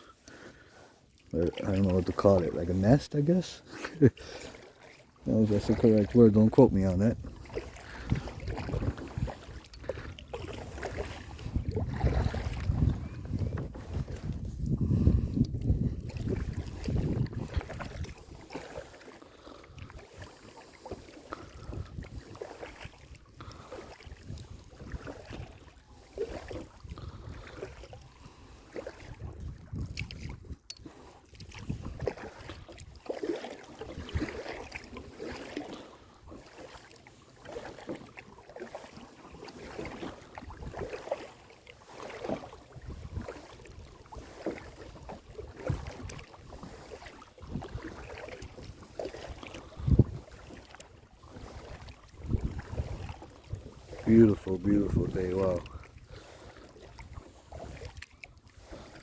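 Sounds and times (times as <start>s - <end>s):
paddle strokes splashing water: 0.0s - 59.0s
wind rumbling on microphone: 5.3s - 18.7s, 21.4s - 33.1s, 33.8s - 35.0s, 39.6s - 41.0s, 42.2s - 59.0s.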